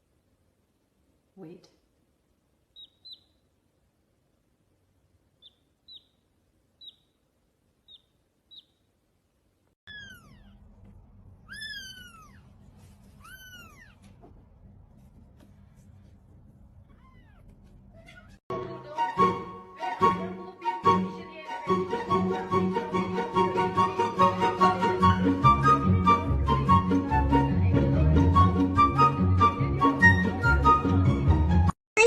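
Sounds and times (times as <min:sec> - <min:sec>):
low steady hum: 0:00.0 - 0:18.4
cat meowing: 0:09.9 - 0:10.7, 0:11.4 - 0:14.2, 0:16.8 - 0:18.4
high squeaks: 0:09.9 - 0:10.8, 0:11.4 - 0:14.2, 0:16.8 - 0:18.4.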